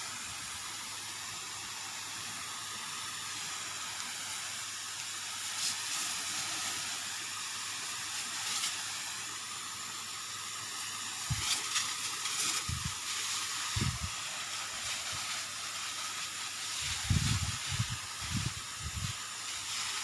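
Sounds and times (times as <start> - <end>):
spray hissing: 0.0 - 20.0
power sprayer engine running: 11.2 - 20.0.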